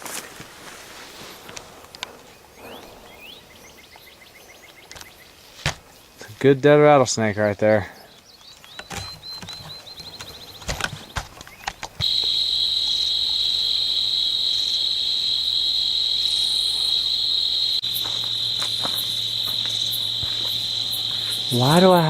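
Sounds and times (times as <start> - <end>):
night insects trilling: 1.2 - 5.5, 11.9 - 22.0.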